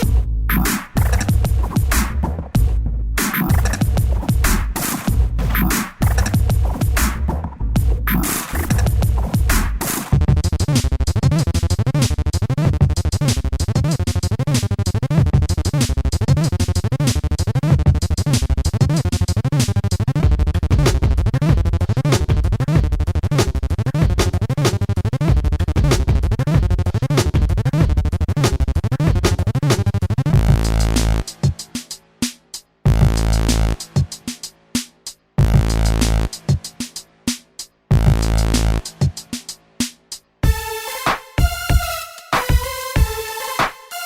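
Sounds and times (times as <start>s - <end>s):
electronic music with heavy bass: 0.0s - 12.0s, 27.6s - 32.0s, 32.9s - 34.4s, 35.4s - 36.9s, 37.9s - 39.6s, 40.4s - 44.0s.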